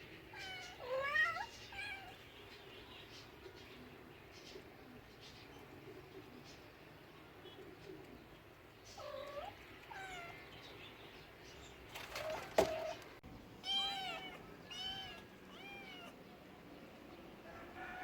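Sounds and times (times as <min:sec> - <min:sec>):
cat meowing: 0:00.4 - 0:02.2, 0:09.0 - 0:10.4, 0:13.6 - 0:16.2.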